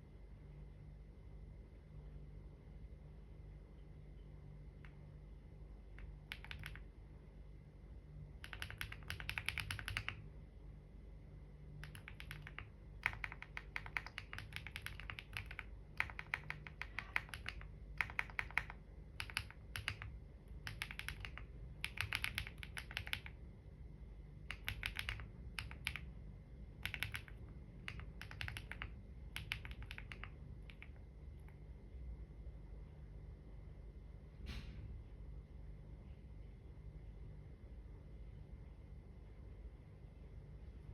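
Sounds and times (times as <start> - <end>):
keyboard typing: 5.9 - 7.0, 8.3 - 10.3, 11.8 - 23.4, 24.4 - 31.6.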